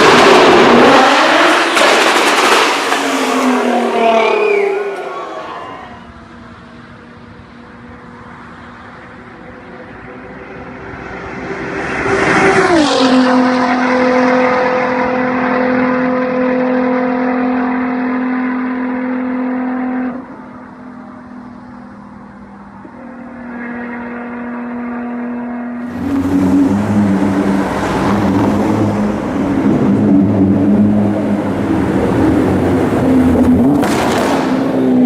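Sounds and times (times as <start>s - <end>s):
loud car exhaust note: 9.6s - 35.0s
car passing by at speed: 9.8s - 19.2s, 23.4s - 35.0s.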